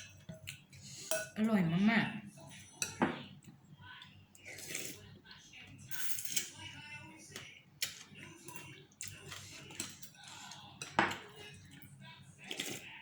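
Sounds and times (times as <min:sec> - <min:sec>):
utensils clinking against bowl: 0:00.0 - 0:01.6, 0:02.4 - 0:03.3, 0:05.7 - 0:12.9.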